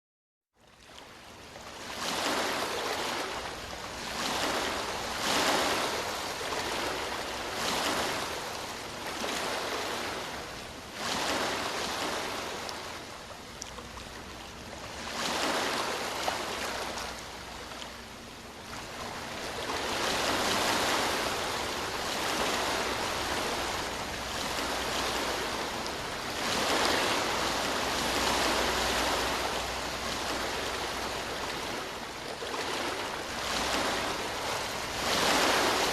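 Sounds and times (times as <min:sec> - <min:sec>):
ocean waves breaking: 0:00.7 - 0:35.9.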